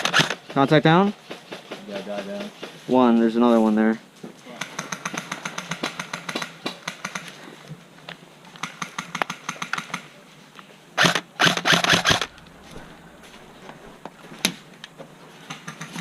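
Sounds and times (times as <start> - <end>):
airsoft rifles firing full auto: 0.0 - 0.9, 4.6 - 7.4, 11.0 - 14.6, 15.4 - 16.0
loud close noise: 11.0 - 16.0.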